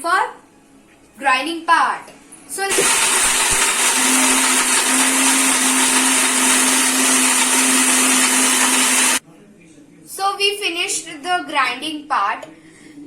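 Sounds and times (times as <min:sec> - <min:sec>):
mixer grinder whirring: 0:02.6 - 0:09.2.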